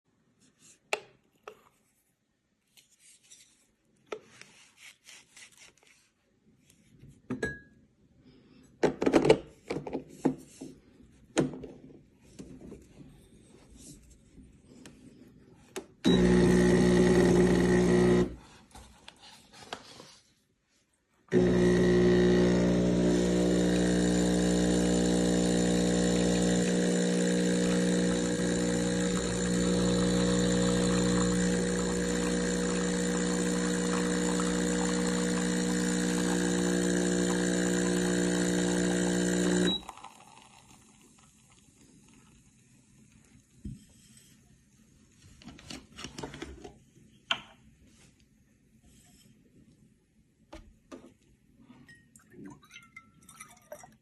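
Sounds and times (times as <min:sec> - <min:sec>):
espresso machine pump buzzing: 0:16.1 - 0:18.4, 0:21.3 - 0:41.5.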